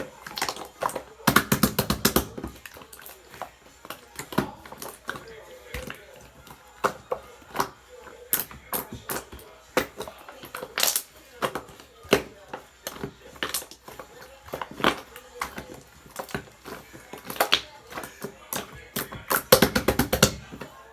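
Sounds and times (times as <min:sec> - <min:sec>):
slime squished by hand: 0:00.0 - 0:20.9.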